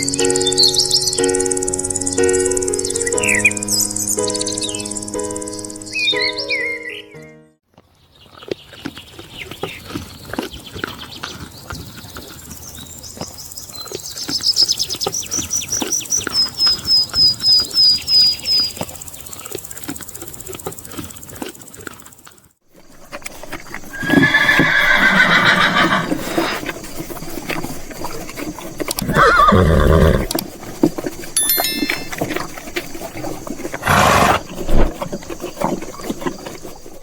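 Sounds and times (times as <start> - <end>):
hoof clip-clops: 7.8 - 37.0
horse neighing: 23.9 - 26.6, 29.0 - 30.4, 33.8 - 34.6
high chirps: 31.4 - 32.5.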